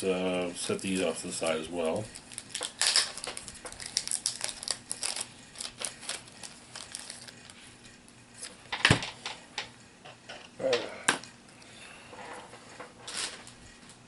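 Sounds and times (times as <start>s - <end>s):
plastic packaging crinkling: 1.9s - 7.6s.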